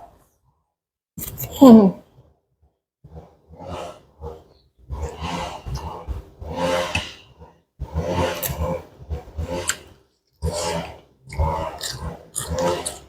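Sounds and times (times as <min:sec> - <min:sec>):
chewing: 0:08.3 - 0:08.8, 0:09.4 - 0:13.0.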